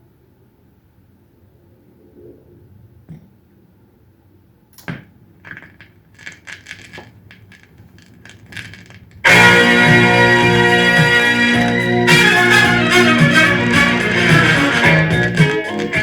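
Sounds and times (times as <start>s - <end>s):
metallic clinks and clatters: 5.5s - 9.4s
loud music: 9.3s - 16.0s.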